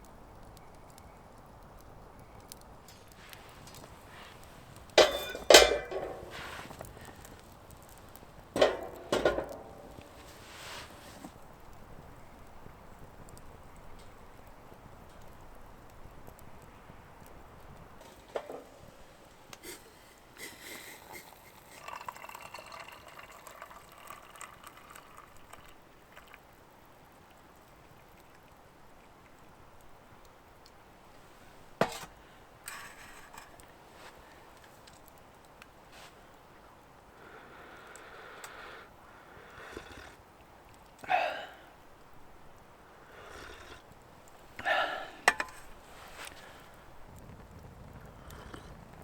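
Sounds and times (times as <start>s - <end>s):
liquid pouring and splashing: 21.1s - 26.4s.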